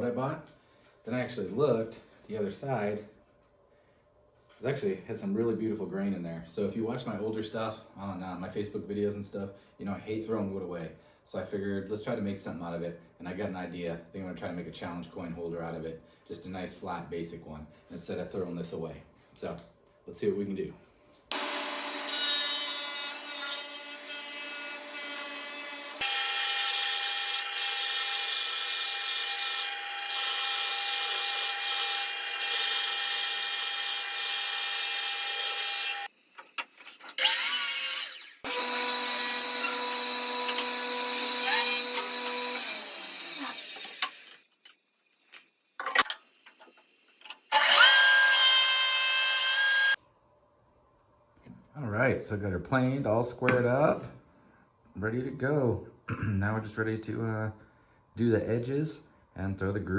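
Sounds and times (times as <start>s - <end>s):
electric wood planer cutting: 21.3s - 36.1s, 37.2s - 44.3s, 47.5s - 50.0s.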